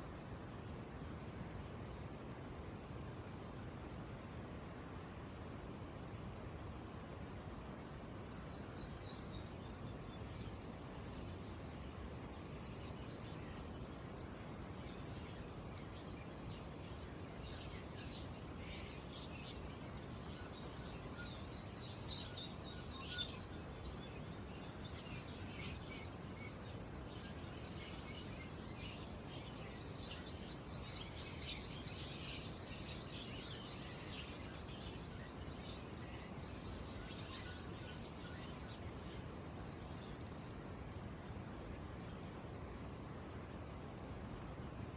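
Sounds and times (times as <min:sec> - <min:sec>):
caged birds chirping: 0:08.0 - 0:40.5.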